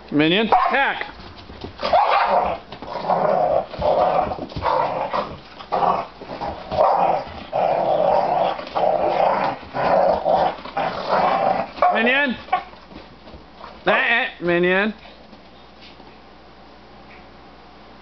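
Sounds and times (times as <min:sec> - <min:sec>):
dog growling and barking: 0:01.8 - 0:12.8.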